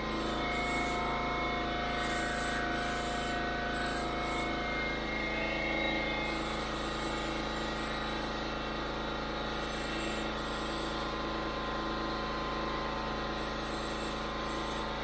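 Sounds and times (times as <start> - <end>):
air compressor running: 0.0 - 15.0.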